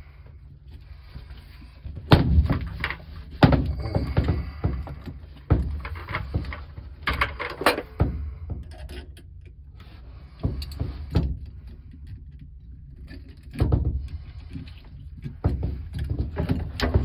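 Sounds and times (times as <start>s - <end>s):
clicks and rattles: 2.2s - 9.6s.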